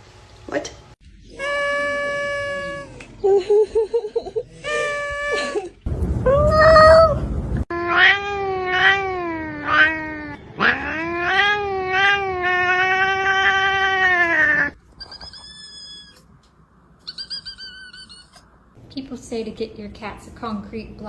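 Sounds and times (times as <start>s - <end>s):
cat yowling: 1.3s - 3.0s, 7.7s - 16.2s
high-pitched short calls: 17.0s - 18.4s.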